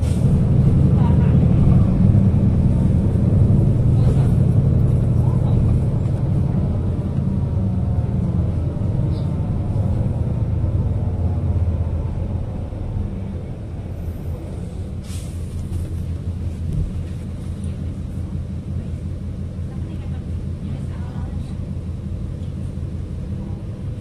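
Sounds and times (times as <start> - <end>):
bus engine and gearbox whine: 0.0 - 24.0
air brakes hissing: 14.3 - 15.9.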